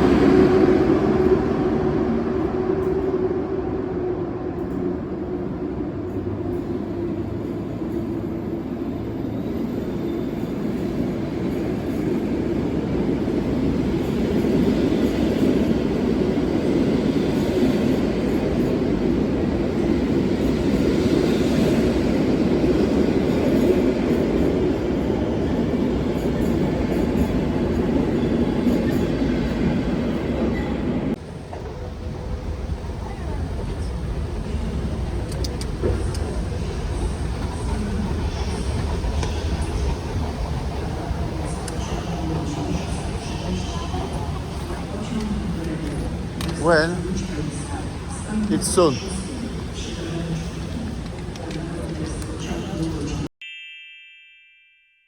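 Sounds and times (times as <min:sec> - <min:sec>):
train rumbling on rails: 0:00.0 - 0:53.3.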